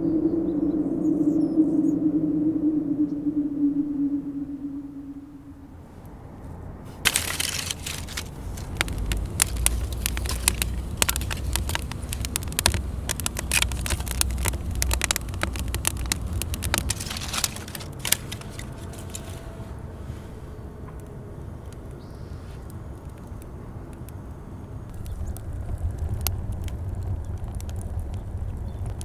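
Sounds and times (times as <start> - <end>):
low rumble: 0.0 - 21.4
dry leaves rustling and crackling: 6.9 - 20.6.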